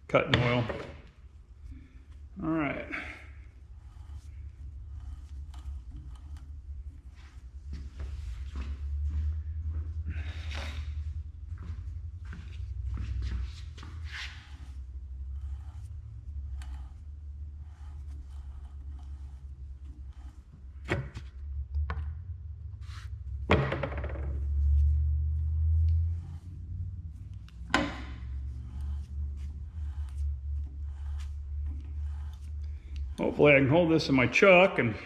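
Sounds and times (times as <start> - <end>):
steady low hum: 0.0 - 35.0
threading die scraping metal: 3.4 - 7.2, 14.4 - 21.3.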